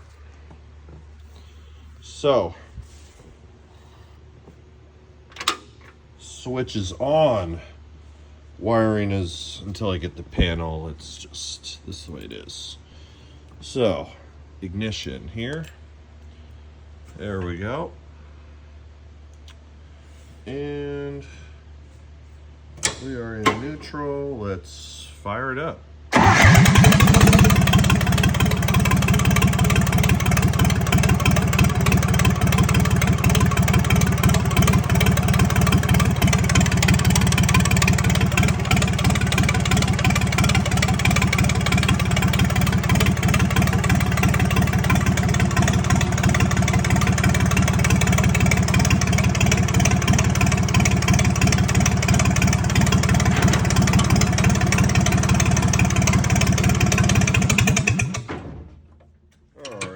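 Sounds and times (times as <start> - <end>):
dozer engine starting and idling: 26.1 - 59.9.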